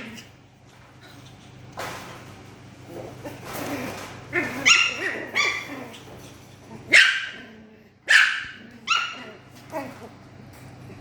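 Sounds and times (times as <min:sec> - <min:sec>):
puppy barking and yipping: 0:04.4 - 0:06.0, 0:06.9 - 0:07.4, 0:08.1 - 0:09.4.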